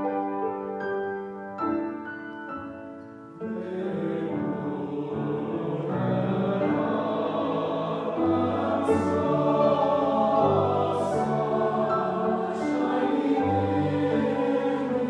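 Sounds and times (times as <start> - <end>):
piano chords: 0.0 - 15.0
choir singing: 3.4 - 15.0.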